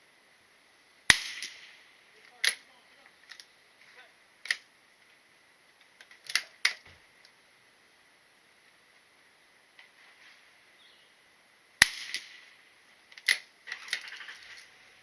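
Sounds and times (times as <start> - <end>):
gunshots: 1.1 - 2.6, 11.8 - 12.6.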